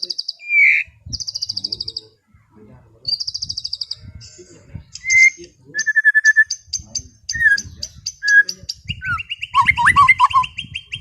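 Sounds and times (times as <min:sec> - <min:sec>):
songbird singing varied song: 0:00.0 - 0:02.4, 0:03.0 - 0:11.0.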